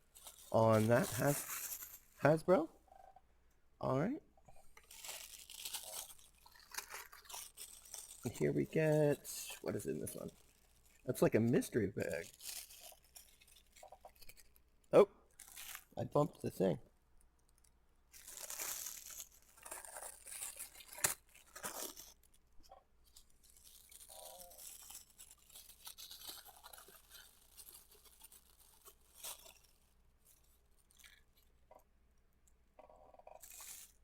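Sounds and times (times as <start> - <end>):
packaging tearing and crinkling: 0.2 - 2.2, 4.8 - 9.0, 15.4 - 15.9, 18.1 - 22.4, 23.0 - 29.9, 33.4 - 34.0.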